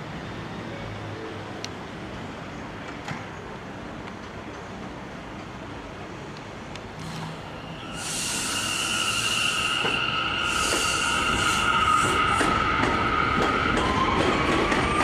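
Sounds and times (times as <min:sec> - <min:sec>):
subway train rumble: 0:00.0 - 0:15.0
train wheel squeal: 0:07.0 - 0:15.0.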